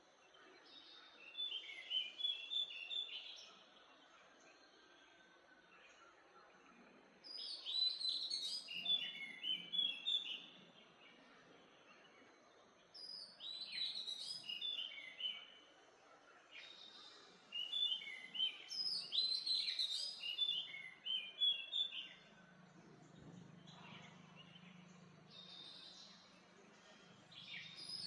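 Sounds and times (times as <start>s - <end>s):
birds chirping: 16.4s - 28.0s
faint low hum: 21.9s - 28.0s.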